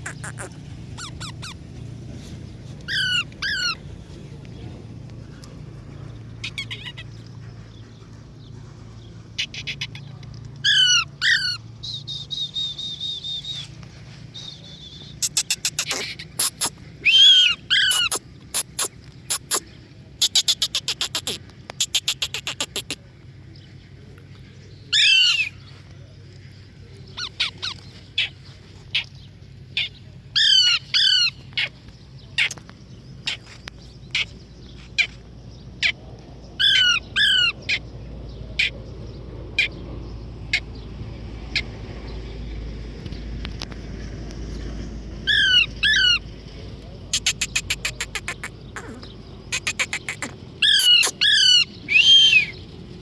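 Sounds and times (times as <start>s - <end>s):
parrot squawking: 0.0s - 1.6s, 2.9s - 3.8s, 6.4s - 7.0s, 9.4s - 10.0s, 10.6s - 11.6s, 15.2s - 19.6s, 20.2s - 23.0s, 36.6s - 37.8s, 45.3s - 46.2s, 47.1s - 52.6s.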